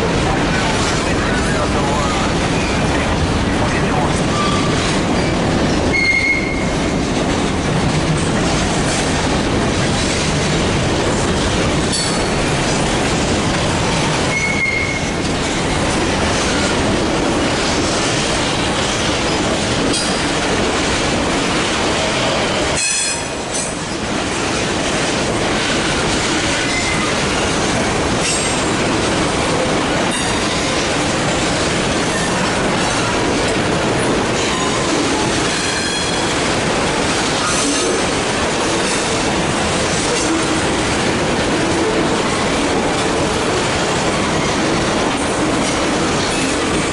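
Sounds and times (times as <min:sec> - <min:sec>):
freight train cars rolling: 0:00.0 - 0:46.9
wheel clickety-clack on rail joints: 0:00.0 - 0:46.9
high wheel squeals: 0:14.3 - 0:15.1.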